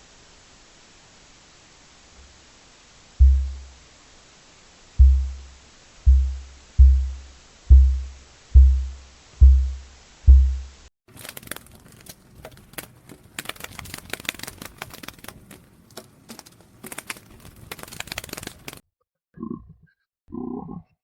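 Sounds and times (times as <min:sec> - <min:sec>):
faint hiss: 0:00.0 - 0:10.9
deep bass drum booms: 0:03.2 - 0:03.8, 0:05.0 - 0:10.8.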